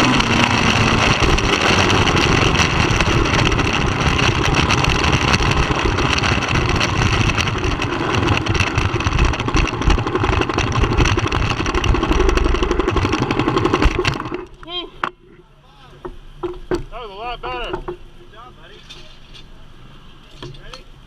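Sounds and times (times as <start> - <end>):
motorcycle engine running: 0.0 - 15.2.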